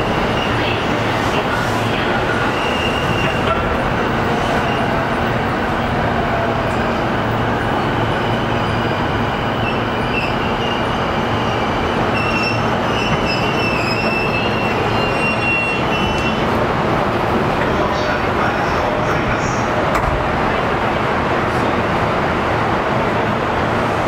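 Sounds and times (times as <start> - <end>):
wheels squealing on rail: 0.0 - 5.1, 6.8 - 16.6
train interior rumble and hiss: 0.0 - 24.0.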